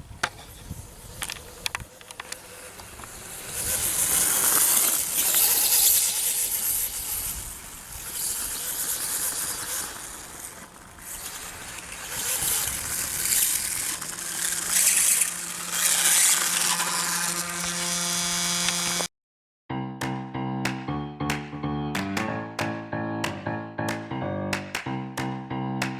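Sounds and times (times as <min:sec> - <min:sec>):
electric toy motorbike running: 0:00.0 - 0:19.1.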